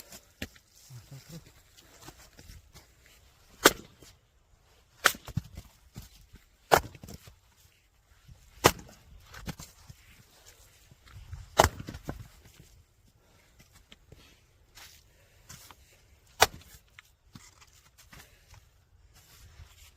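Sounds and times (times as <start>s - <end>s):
firewood splitting cracks: 3.5s - 4.2s, 4.9s - 7.4s, 8.4s - 9.9s, 11.3s - 12.6s, 16.3s - 17.6s.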